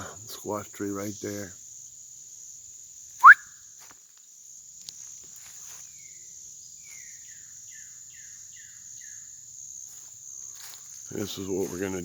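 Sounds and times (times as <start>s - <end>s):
high insect drone: 0.0s - 12.0s
cardinal whistling: 3.2s - 3.5s.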